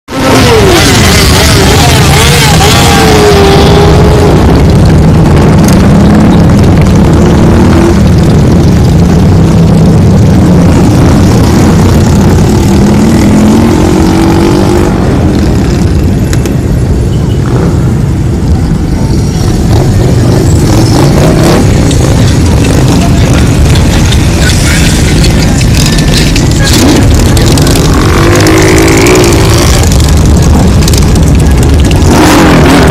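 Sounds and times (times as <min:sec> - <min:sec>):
motorcycle engines revving: 0:00.0 - 0:32.9.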